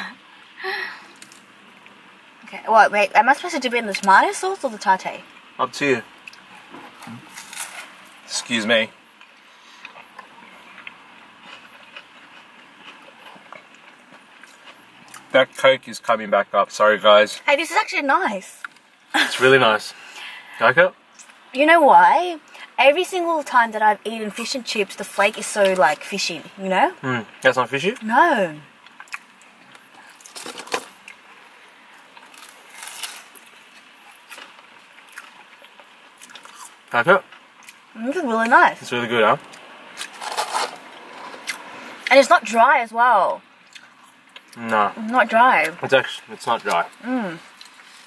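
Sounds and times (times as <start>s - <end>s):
low hiss: 0.0s - 11.4s, 14.8s - 30.2s
faint crunchy chewing: 6.2s - 8.2s, 9.2s - 15.7s, 28.8s - 38.0s, 43.6s - 44.8s.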